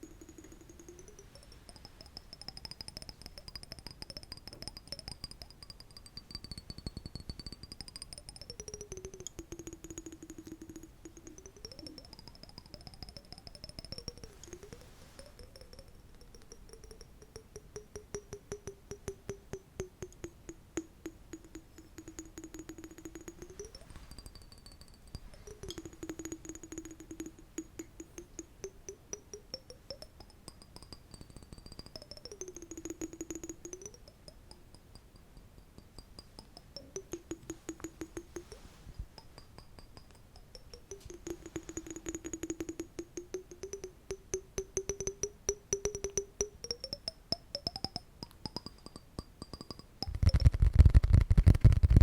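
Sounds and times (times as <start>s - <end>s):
rapid light tapping: 0.0s - 52.0s.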